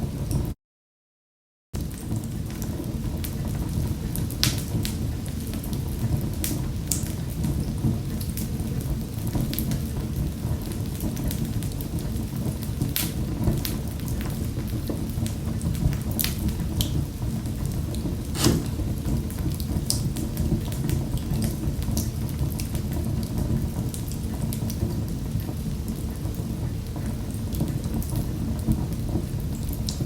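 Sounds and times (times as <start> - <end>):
fire pops and snaps: 18.3 - 19.0.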